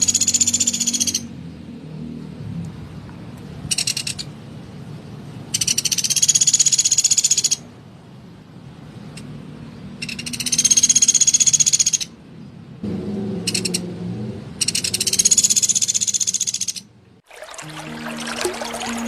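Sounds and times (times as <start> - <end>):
woodpecker rattling trill calls: 3.7 - 4.3, 5.5 - 7.7, 10.0 - 12.2, 14.6 - 16.9.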